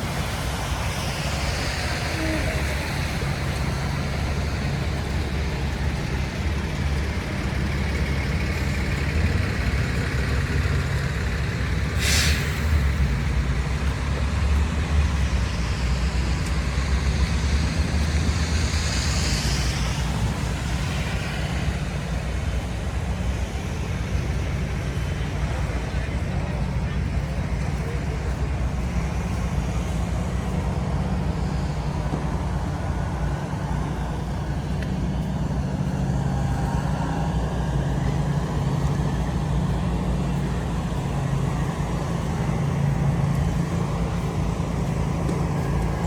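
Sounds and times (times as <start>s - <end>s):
traffic engine rumble: 0.0s - 46.0s
vehicle passing: 0.0s - 46.0s
air brake hiss: 11.8s - 13.3s.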